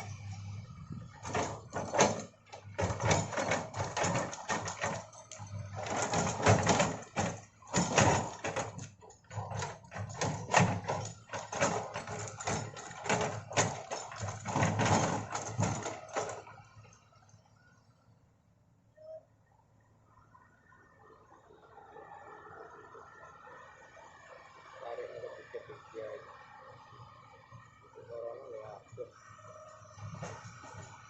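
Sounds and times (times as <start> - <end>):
excavator clanking and knocking: 0.0 - 17.0, 28.5 - 31.0
excavator diesel engine: 0.0 - 18.2, 21.2 - 31.0.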